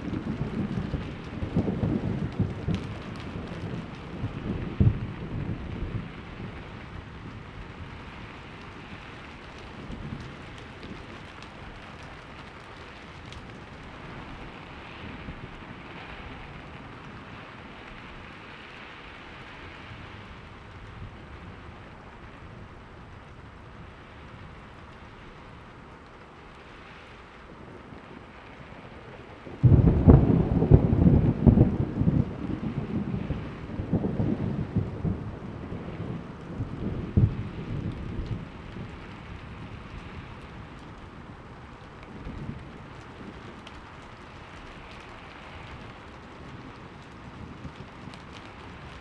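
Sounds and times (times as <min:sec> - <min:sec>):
steady rain: 0:00.0 - 0:49.0
thunder rumbling: 0:00.0 - 0:49.0
sharp thunder crack: 0:29.6 - 0:35.2.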